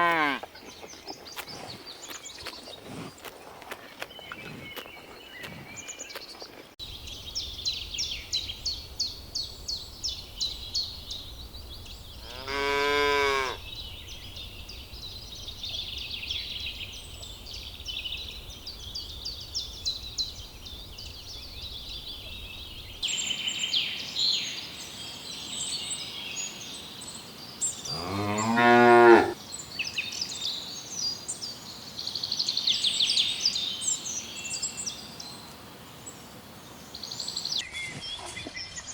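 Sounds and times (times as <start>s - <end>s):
cow mooing: 12.2s - 13.6s, 27.9s - 29.4s.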